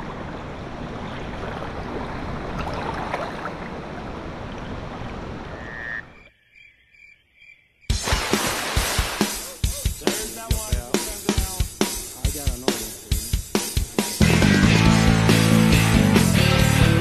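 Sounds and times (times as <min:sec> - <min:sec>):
frog calls: 0:05.5 - 0:07.9
drum-kit music: 0:07.9 - 0:17.0
jungle river rushing: 0:08.0 - 0:15.5.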